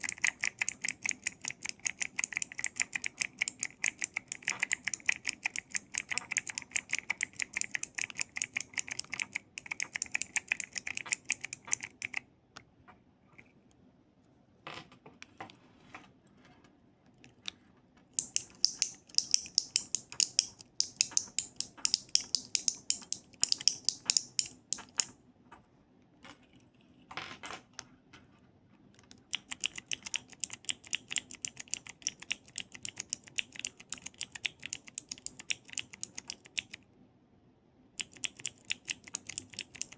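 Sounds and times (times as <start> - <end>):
keyboard keys clicking: 0.0 - 12.2, 18.2 - 25.1, 29.0 - 36.8, 38.0 - 39.9.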